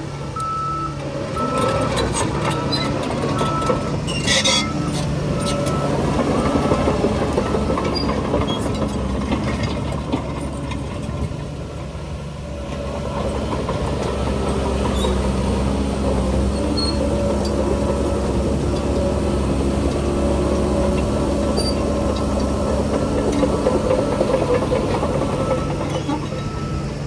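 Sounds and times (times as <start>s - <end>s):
diesel engines running: 0.0s - 27.0s
reversing alarm beeping: 0.4s - 6.9s, 20.1s - 27.0s.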